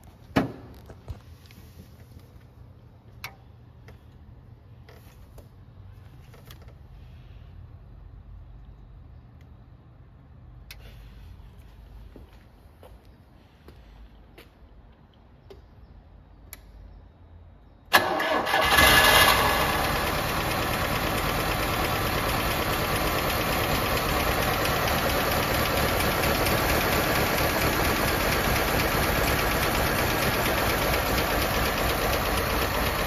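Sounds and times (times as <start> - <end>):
car engine starting and idling: 17.9 - 33.0.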